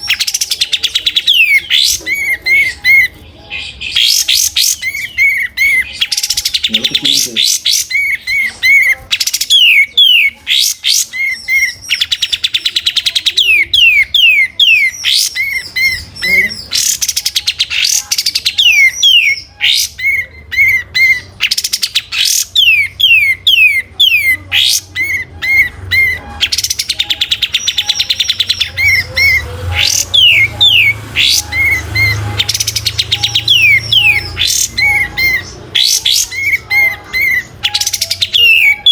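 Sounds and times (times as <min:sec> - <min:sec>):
bird singing whistles and trills: 0:00.0 - 0:38.9.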